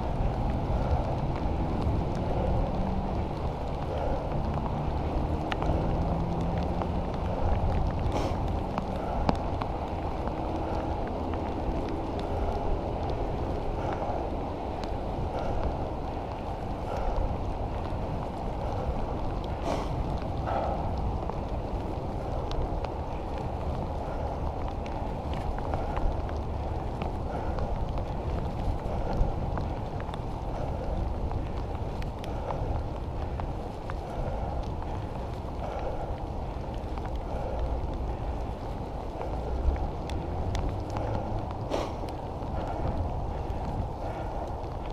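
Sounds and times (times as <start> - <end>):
wind on microphone: 0.0 - 44.9
faint ticks: 5.4 - 14.2
bicycle tyre hiss: 7.0 - 11.0, 11.7 - 24.4, 25.0 - 44.9.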